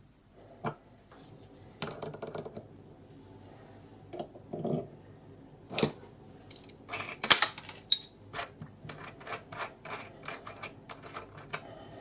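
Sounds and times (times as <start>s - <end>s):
metal parts clicking and clinking: 5.8s - 11.6s.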